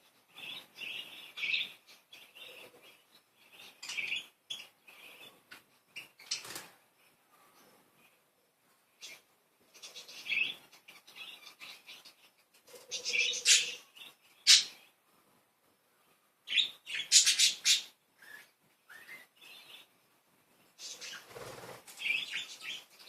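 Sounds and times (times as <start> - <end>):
budgerigars chattering and chirping: 12.8 - 14.8, 16.5 - 19.9, 20.8 - 22.9.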